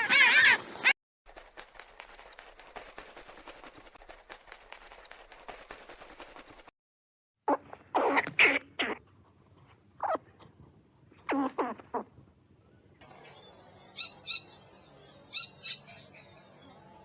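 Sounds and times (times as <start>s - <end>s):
loud animal sound: 0.0s - 0.9s.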